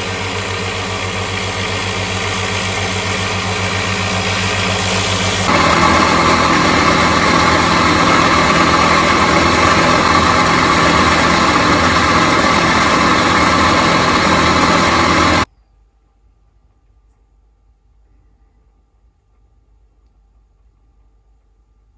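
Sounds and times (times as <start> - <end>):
power tool motor grinding: 0.0 - 15.5.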